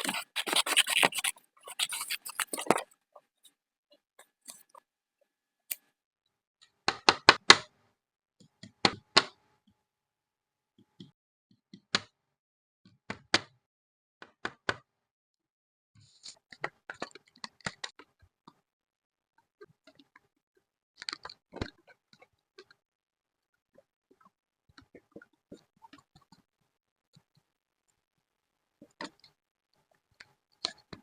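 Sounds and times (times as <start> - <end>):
scissors snipping: 0.0 - 2.8.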